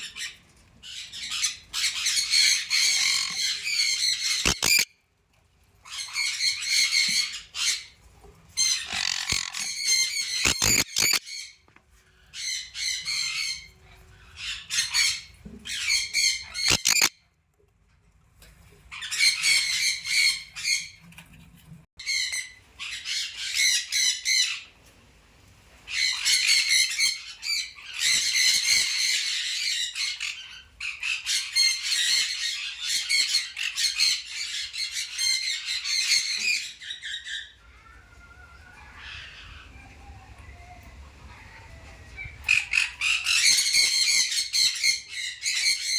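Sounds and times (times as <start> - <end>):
birds calling: 0.9 - 4.9, 8.6 - 11.6, 12.2 - 17.1, 25.9 - 45.9.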